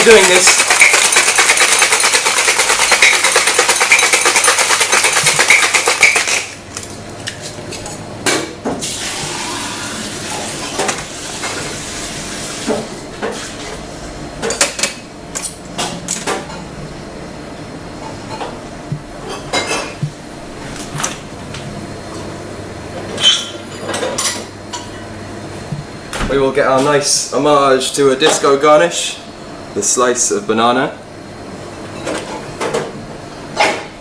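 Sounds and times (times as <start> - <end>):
ice rattling in cocktail shaker: 0.0 - 6.6.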